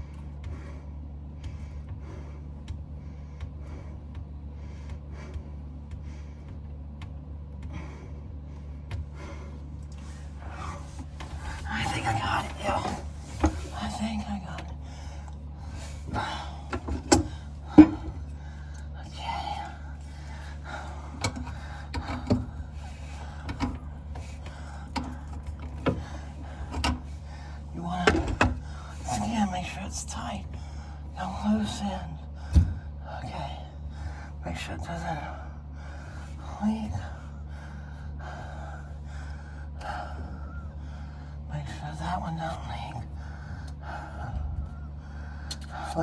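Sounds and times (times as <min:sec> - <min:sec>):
person breathing hard: 0:00.0 - 0:29.3, 0:30.4 - 0:31.2, 0:32.2 - 0:34.4, 0:35.2 - 0:41.5, 0:43.0 - 0:46.0
steady low hum: 0:00.0 - 0:46.0
knocks handling pipe fittings: 0:10.0 - 0:13.9, 0:14.6 - 0:18.9, 0:20.1 - 0:27.2, 0:28.0 - 0:28.8
clicks and taps of plumbing tools: 0:12.9 - 0:13.8, 0:16.0 - 0:18.9, 0:20.3 - 0:27.1, 0:28.0 - 0:28.7.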